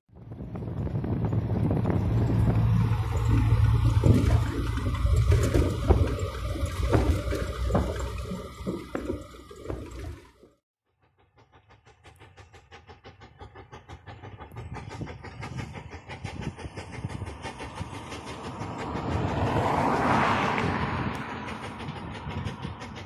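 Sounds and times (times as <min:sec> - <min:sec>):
wind rushing: 0:00.1 - 0:08.1, 0:14.5 - 0:23.0
car engine running: 0:00.2 - 0:10.4.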